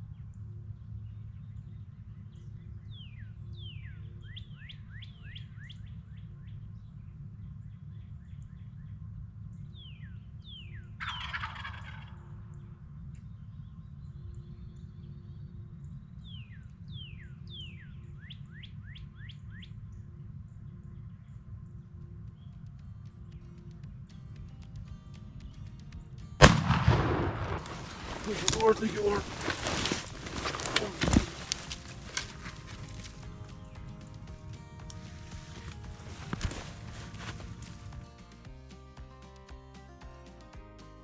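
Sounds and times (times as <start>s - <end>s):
turkey gobbling: 11.0s - 12.5s, 26.4s - 33.9s.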